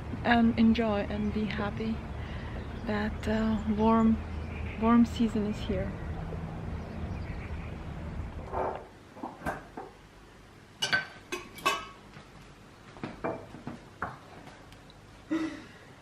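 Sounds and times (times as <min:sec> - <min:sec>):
low steady rumble: 0:00.0 - 0:08.7
glass jars clinking: 0:10.8 - 0:12.0.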